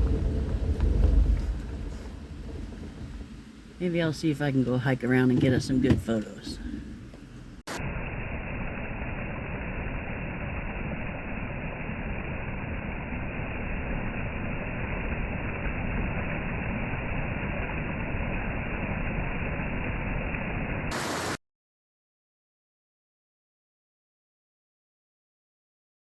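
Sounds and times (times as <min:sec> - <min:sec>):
waterfall roaring: 0:20.9 - 0:21.4.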